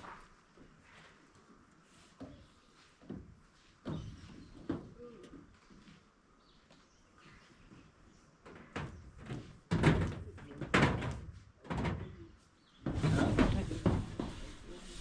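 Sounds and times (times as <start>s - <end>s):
clattering noise: 8.5s - 12.2s
heavy knocks and thuds: 8.5s - 12.2s, 12.8s - 14.4s.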